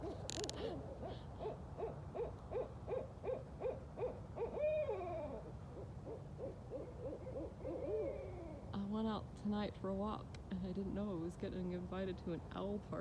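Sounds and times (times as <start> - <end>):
owls hooting: 0.3 - 8.7.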